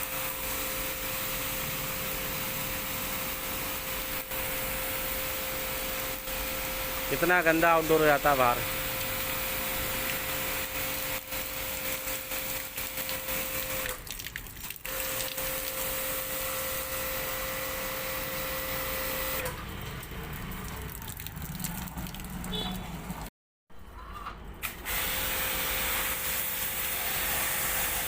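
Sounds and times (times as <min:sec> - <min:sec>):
pressure washer spraying: 0:00.0 - 0:14.0, 0:14.6 - 0:19.5, 0:24.8 - 0:28.0.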